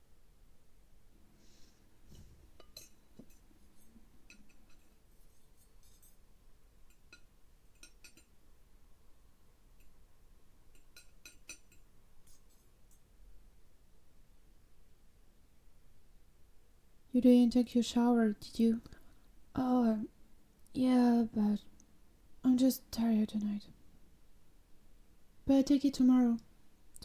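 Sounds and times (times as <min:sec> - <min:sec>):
cutlery clinking against dishes: 0:02.6 - 0:06.2, 0:06.8 - 0:08.4, 0:10.7 - 0:13.1.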